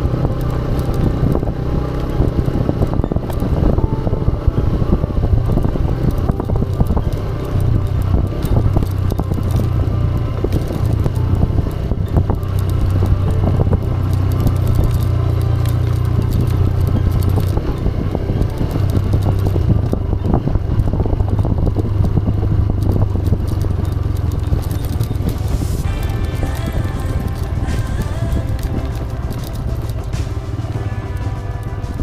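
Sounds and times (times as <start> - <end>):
motorcycle engine running: 0.0 - 32.0
clicks and knocks from bike: 5.4 - 32.0.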